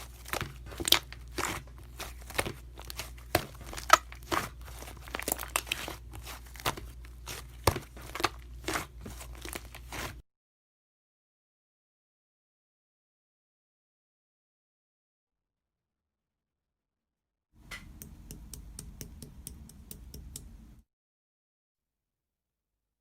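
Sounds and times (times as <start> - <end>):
crinkling and crackling: 0.0 - 10.2.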